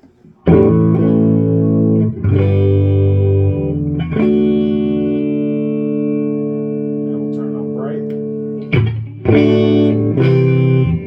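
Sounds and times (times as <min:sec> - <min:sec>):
electric guitar chords ringing: 0:00.4 - 0:11.0.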